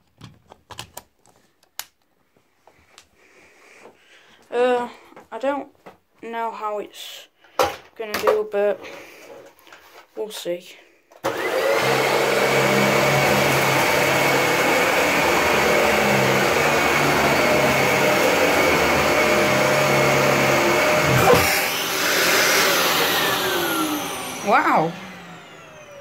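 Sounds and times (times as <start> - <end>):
vacuum cleaner running: 11.2 - 26.0.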